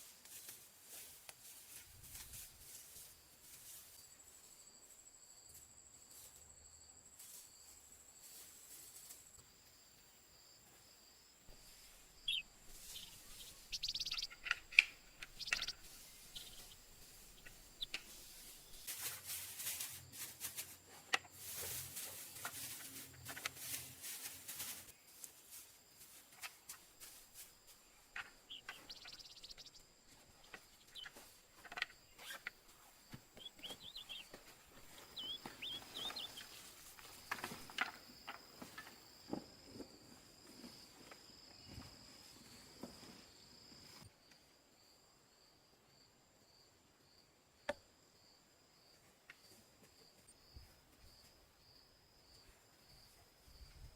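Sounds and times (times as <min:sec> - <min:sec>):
rustling: 0:11.5 - 0:39.0
bird chirps: 0:12.2 - 0:18.9, 0:28.2 - 0:31.3, 0:33.3 - 0:36.8.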